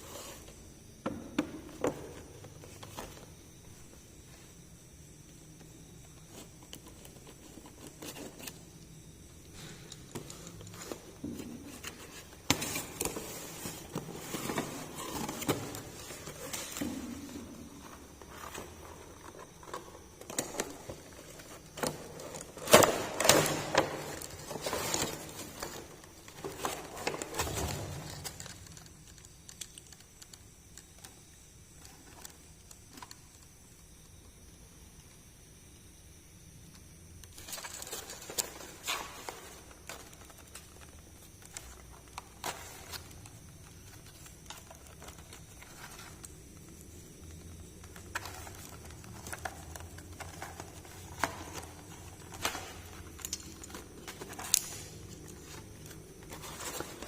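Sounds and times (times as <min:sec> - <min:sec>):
plastic toys clicking and tapping: 0:28.2 - 0:31.2.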